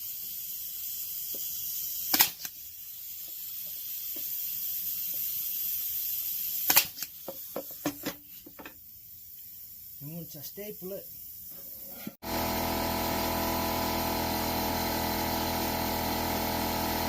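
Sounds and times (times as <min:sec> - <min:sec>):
steady high hiss: 0:00.0 - 0:12.2
staple gun firing: 0:02.1 - 0:02.5.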